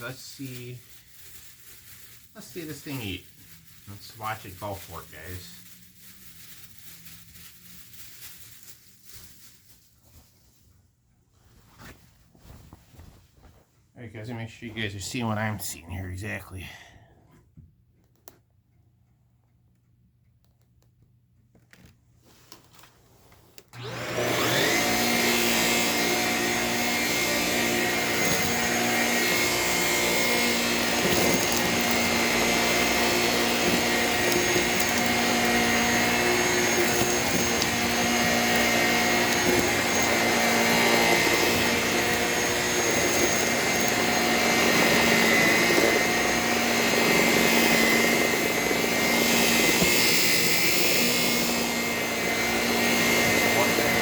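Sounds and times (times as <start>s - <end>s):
stick vacuum motor whining: 2.3s - 5.6s, 23.7s - 54.0s.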